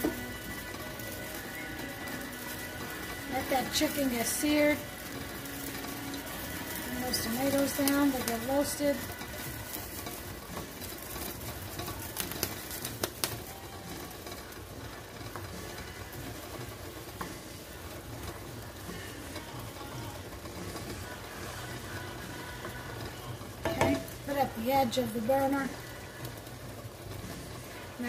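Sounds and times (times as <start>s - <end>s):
food sizzling in a pot: 0.0s - 28.0s
wooden spoon knocking a pot: 23.6s - 24.2s.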